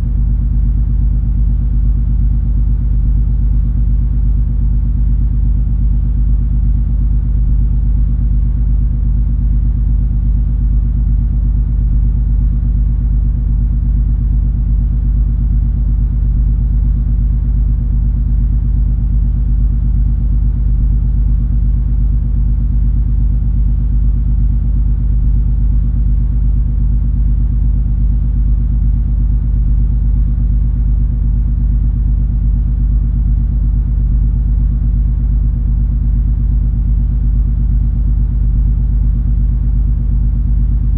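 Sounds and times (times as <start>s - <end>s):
low hum tones: 25.0s - 40.9s.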